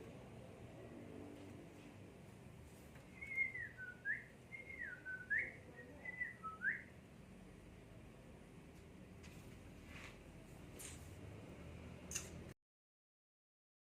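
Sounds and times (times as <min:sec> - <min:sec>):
songbird whistling: 0:03.2 - 0:06.9.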